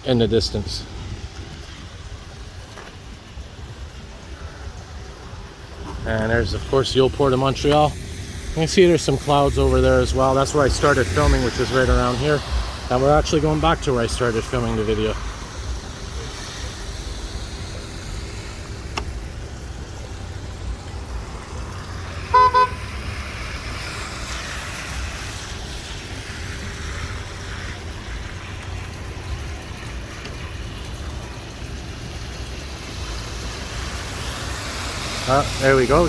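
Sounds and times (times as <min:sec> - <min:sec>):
vehicle horn toots: 0:22.3 - 0:22.9.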